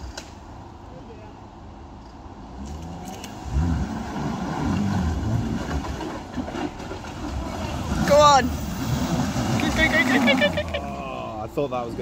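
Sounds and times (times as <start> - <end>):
car engine revving: 2.6 - 11.3
wheels churning through mud: 2.8 - 12.0.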